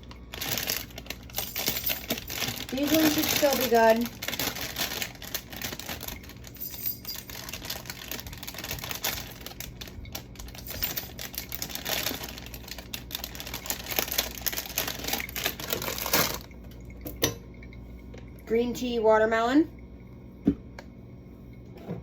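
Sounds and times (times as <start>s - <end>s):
jars and containers clattering: 0.4s - 17.5s.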